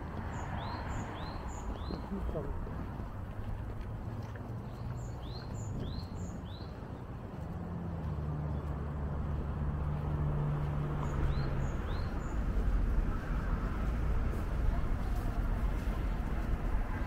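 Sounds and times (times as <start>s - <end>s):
traffic rumble with engine hum: 0.0s - 17.0s.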